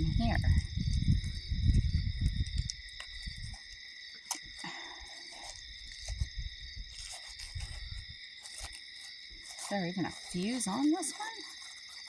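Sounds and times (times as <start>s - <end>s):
low rumble on microphone: 0.0s - 3.6s
crickets trilling: 0.0s - 12.0s
faint ticks: 2.2s - 6.3s.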